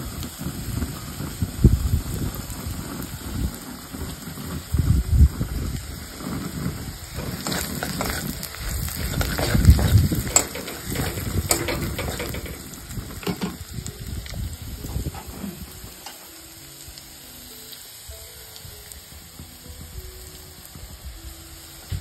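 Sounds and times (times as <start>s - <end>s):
onions sizzling in hot oil: 0.0s - 22.0s
spatula scraping a metal pan: 6.1s - 13.4s.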